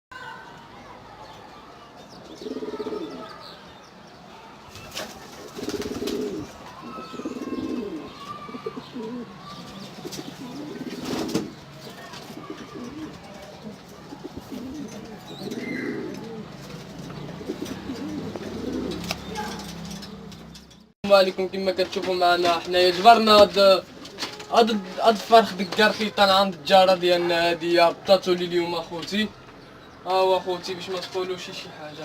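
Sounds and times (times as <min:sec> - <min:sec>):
pigeons cooing: 0:02.2 - 0:03.4, 0:04.8 - 0:19.8
higher bird chirps: 0:04.7 - 0:13.1, 0:14.6 - 0:16.1.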